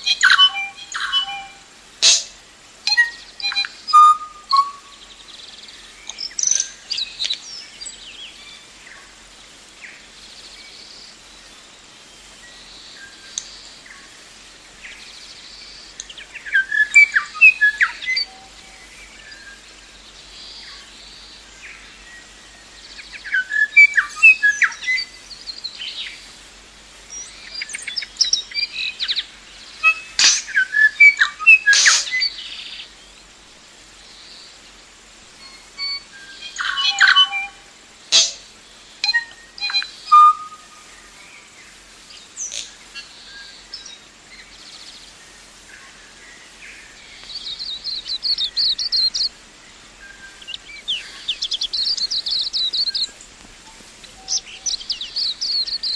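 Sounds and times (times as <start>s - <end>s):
bird chirps and whistles: 0.0s - 2.3s, 2.9s - 5.0s, 16.4s - 18.5s, 23.0s - 25.1s, 29.8s - 32.5s, 35.4s - 38.4s, 39.0s - 40.7s, 47.5s - 49.3s, 54.2s - 55.9s
faint steady hiss: 0.0s - 55.9s.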